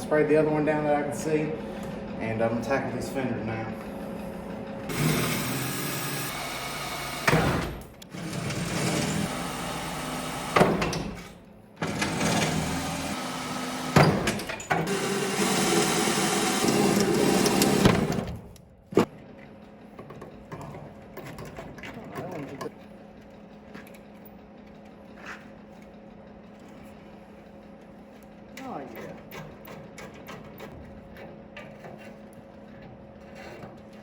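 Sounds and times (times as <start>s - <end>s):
handheld power tool running: 4.9s - 10.8s, 11.8s - 18.2s.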